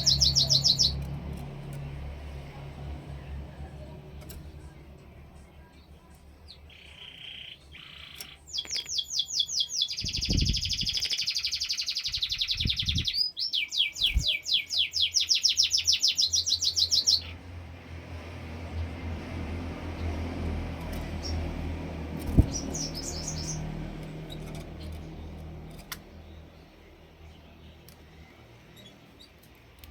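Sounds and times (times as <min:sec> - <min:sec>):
songbird trilling: 0:00.0 - 0:01.1, 0:06.5 - 0:17.4, 0:22.3 - 0:23.7.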